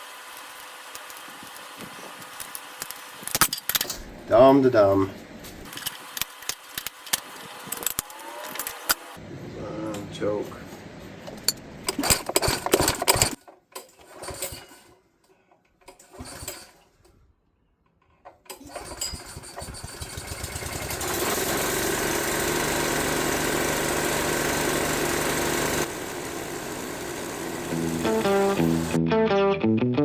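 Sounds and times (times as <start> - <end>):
gas engine starting and running: 11.2 - 13.4, 18.5 - 29.0.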